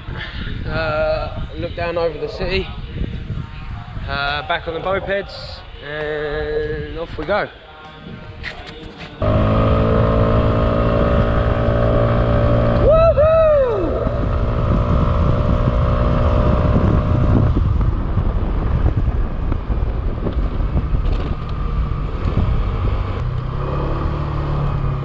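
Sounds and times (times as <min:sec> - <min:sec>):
wind rushing over microphone: 0:00.0 - 0:07.4, 0:08.0 - 0:25.0
moped engine running: 0:09.2 - 0:12.8.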